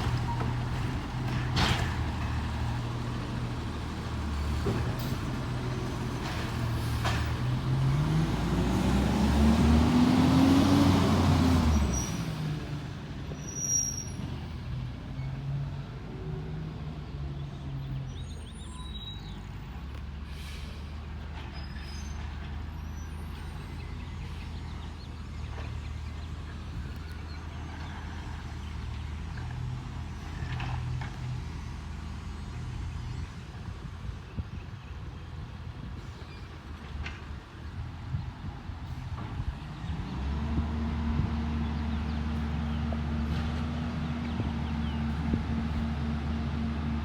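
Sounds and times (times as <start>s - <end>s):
diesel engine revving and idling: 0.0s - 36.1s, 36.8s - 47.0s
short high squeal: 13.4s - 14.3s, 18.2s - 19.4s.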